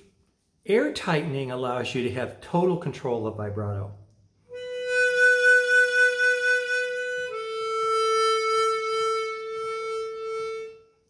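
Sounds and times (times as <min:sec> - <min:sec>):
harmonica long held notes: 0:04.5 - 0:11.0.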